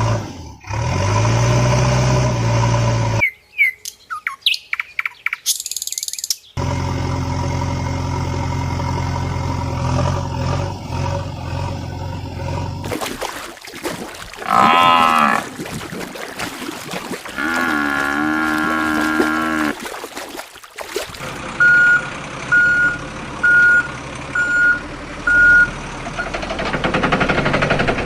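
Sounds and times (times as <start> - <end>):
engine drone: 6.6 - 28.0
cow mooing: 14.3 - 19.9.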